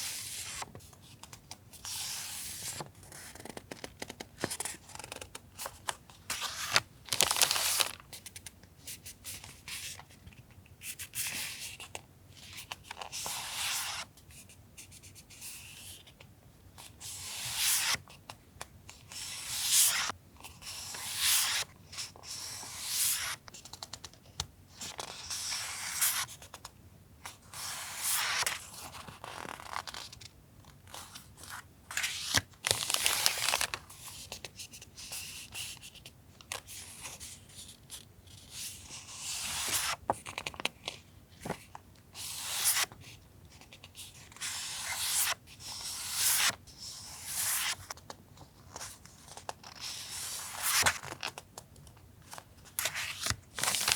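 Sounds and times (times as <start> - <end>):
paper rustling and crinkling: 2.6 - 8.5, 52.2 - 53.9.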